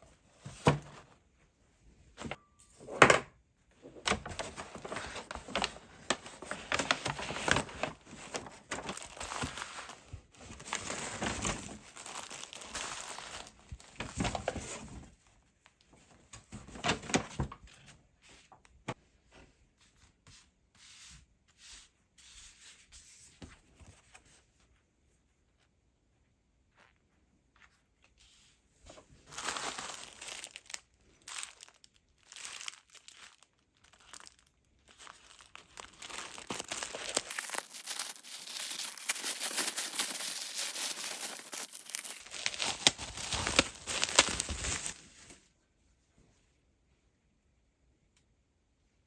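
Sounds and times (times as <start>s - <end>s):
paper or plastic crinkling: 4.1s - 14.9s, 29.2s - 45.4s.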